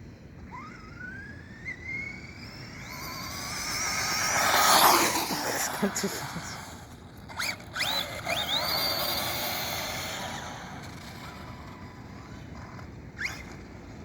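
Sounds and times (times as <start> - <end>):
drivetrain and tyre noise: 0.0 - 14.0
rc truck motor whine: 0.0 - 14.0.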